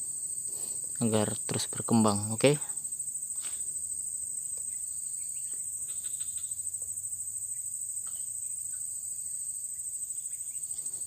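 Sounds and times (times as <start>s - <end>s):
insects chirring trill: 0.0s - 11.0s.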